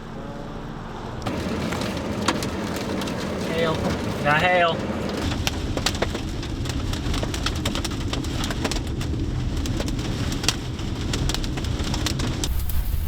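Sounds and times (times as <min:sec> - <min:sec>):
hailstones striking vehicle: 0:01.2 - 0:13.0
steady low rumble: 0:11.7 - 0:13.0.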